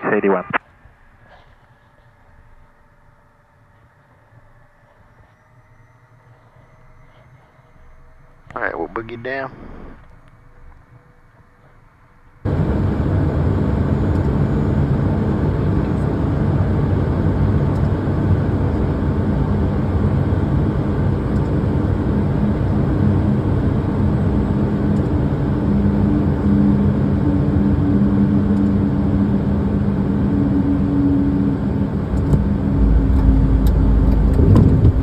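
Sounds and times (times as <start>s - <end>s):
low hum: 0.0s - 35.0s
vehicle engine rumble: 9.5s - 35.0s.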